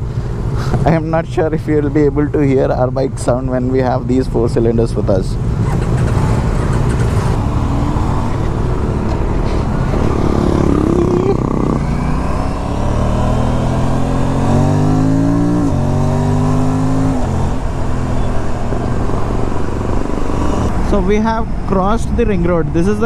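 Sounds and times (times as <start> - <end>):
motorcycle engine accelerating: 5.2 - 21.0
wind rushing: 6.1 - 15.6.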